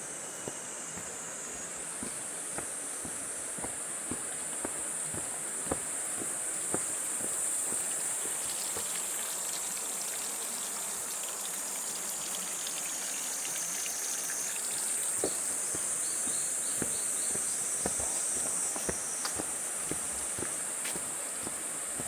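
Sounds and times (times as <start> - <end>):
faint footsteps: 0.0 - 9.1, 15.2 - 22.0
flowing water hiss: 0.0 - 22.0
high-pitched insect chorus: 0.0 - 22.0.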